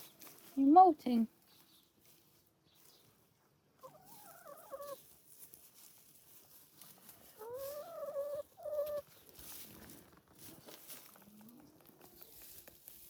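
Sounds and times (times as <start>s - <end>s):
hen giving wavering calls: 3.8s - 5.0s, 7.4s - 9.0s.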